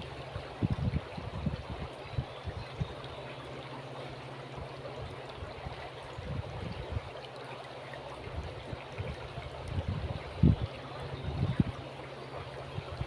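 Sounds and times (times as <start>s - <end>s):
wind buffeting microphone: 0.0s - 3.0s, 4.6s - 7.1s, 8.2s - 11.9s, 12.7s - 13.0s
river water flowing: 0.0s - 13.0s.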